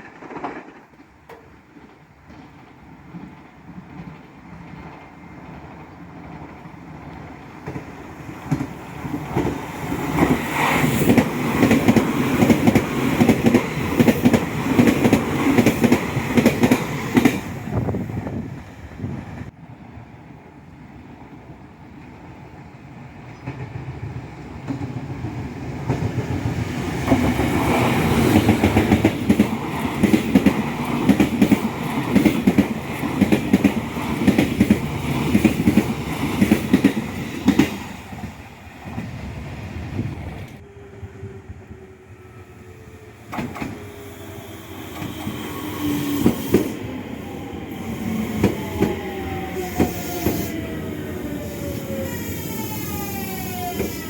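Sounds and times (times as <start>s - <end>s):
train wheels clickety-clack: 0.0s - 18.4s, 23.2s - 39.2s, 43.2s - 51.8s.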